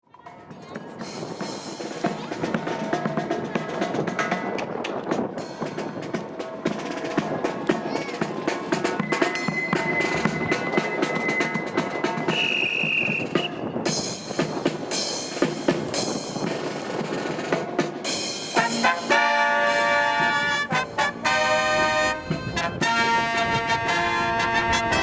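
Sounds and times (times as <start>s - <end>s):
wind buffeting microphone: 0.4s - 18.2s, 21.6s - 25.0s
brass stabs and chords: 18.5s - 25.0s.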